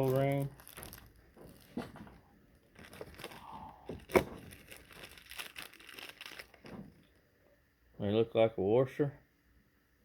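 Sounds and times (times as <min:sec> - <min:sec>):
packaging crinkling and rustling: 0:00.0 - 0:07.2.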